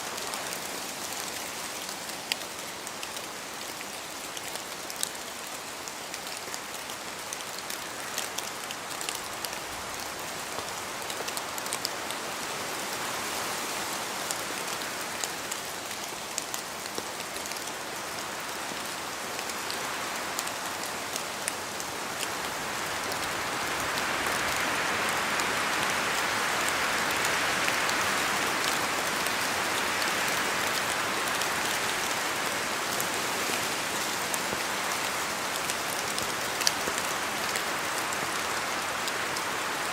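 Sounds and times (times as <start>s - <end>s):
steady rain in forest: 0.0s - 39.9s.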